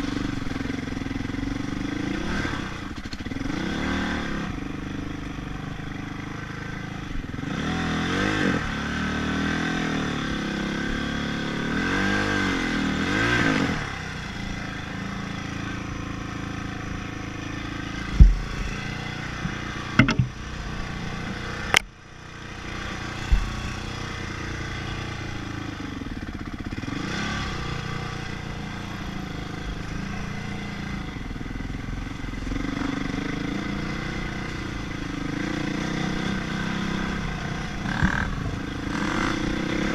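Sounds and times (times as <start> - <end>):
dirt bike engine revving: 0.0 - 21.8, 22.4 - 39.9
sharp knocks: 18.1 - 18.7, 19.4 - 20.4.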